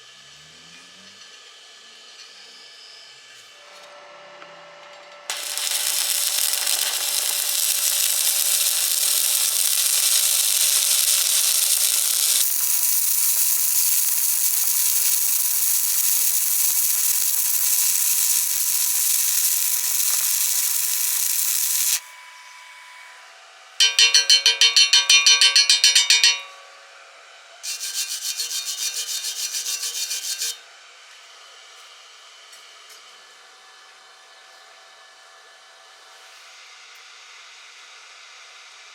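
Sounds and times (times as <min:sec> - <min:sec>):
arc welding hiss: 0:05.3 - 0:22.1.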